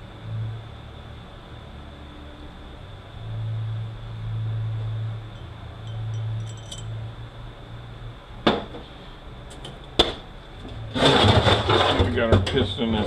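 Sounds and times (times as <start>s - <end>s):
low hum: 0.0s - 9.5s
metal parts clinking on bench: 5.4s - 7.0s.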